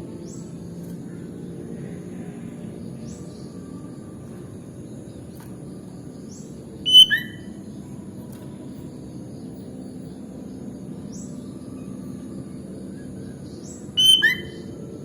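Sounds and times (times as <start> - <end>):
low background hum: 0.0 - 15.0
faint high rising chirp: 1.8 - 15.0
bulbul whistled notes: 6.9 - 7.4, 14.0 - 14.6.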